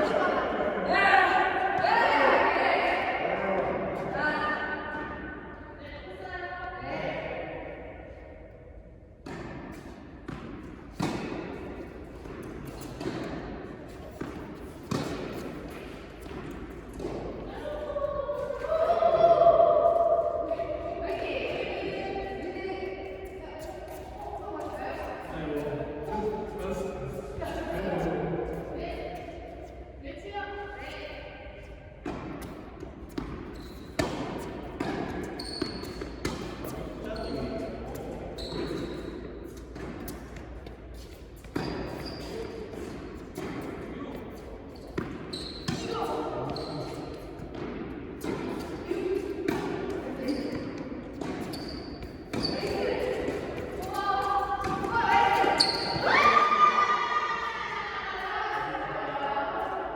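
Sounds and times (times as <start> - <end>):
tennis ball struck and bouncing: 9.2 - 13.5, 14.1 - 17.4, 32.0 - 36.8
short high squeaks: 51.4 - 52.7.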